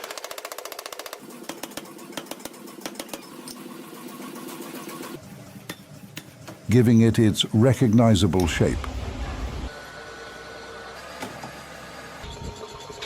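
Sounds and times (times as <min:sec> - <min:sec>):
machinery humming: 0:03.8 - 0:13.0.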